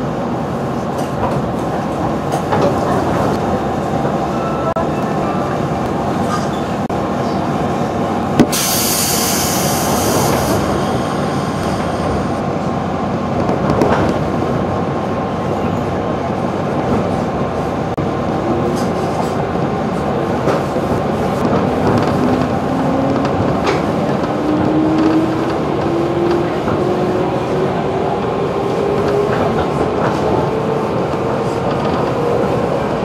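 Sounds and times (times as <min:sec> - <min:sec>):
train wheels rumbling: 0:00.0 - 0:33.0
air hiss: 0:08.5 - 0:11.9.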